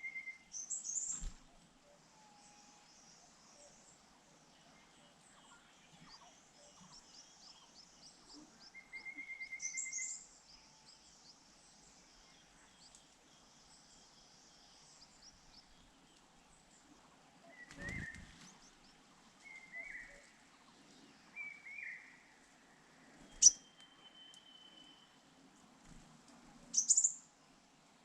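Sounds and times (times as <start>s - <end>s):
faint outdoor ambience: 0.0s - 28.0s
bird wing flutter: 1.0s - 1.6s, 17.7s - 18.6s
bird chirps: 4.8s - 14.0s, 23.1s - 25.2s, 26.7s - 27.3s.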